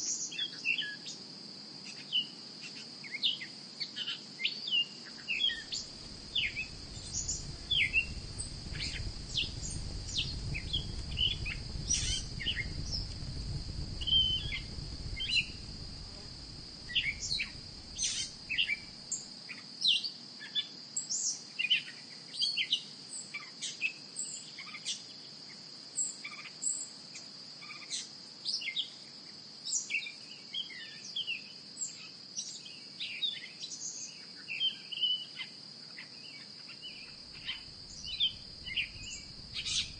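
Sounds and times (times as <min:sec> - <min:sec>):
high-pitched insect drone: 0:05.5 - 0:19.3, 0:36.9 - 0:39.9
low rumble: 0:05.8 - 0:18.6, 0:37.3 - 0:39.9.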